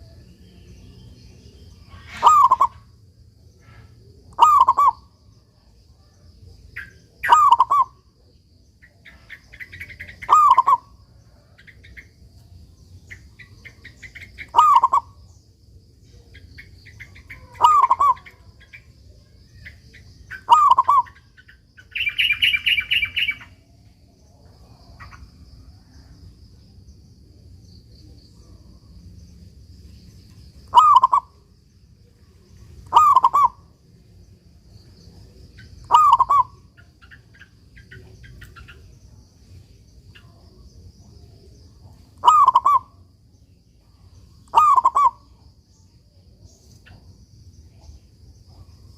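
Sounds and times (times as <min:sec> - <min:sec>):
soft bird chirps: 0:00.0 - 0:48.9
buzzy bird call: 0:01.9 - 0:02.9, 0:03.6 - 0:05.1, 0:07.2 - 0:08.0, 0:09.1 - 0:10.9, 0:13.7 - 0:15.2, 0:16.9 - 0:18.7, 0:20.3 - 0:23.5, 0:30.7 - 0:31.4, 0:32.9 - 0:33.7, 0:35.8 - 0:37.5, 0:42.2 - 0:43.0, 0:44.5 - 0:45.3
dove cooing: 0:02.0 - 0:02.8, 0:04.3 - 0:05.0, 0:07.2 - 0:08.0, 0:09.1 - 0:11.0, 0:13.7 - 0:15.2, 0:17.0 - 0:18.5, 0:20.3 - 0:21.3, 0:30.7 - 0:31.4, 0:32.8 - 0:33.7, 0:35.8 - 0:36.9, 0:42.2 - 0:43.0, 0:44.5 - 0:45.4.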